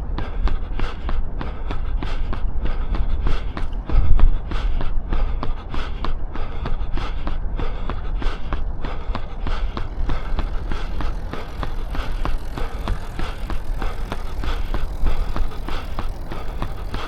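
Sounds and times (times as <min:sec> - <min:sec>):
runner's footsteps: 0:00.0 - 0:17.0
steady low rumble: 0:00.0 - 0:17.0.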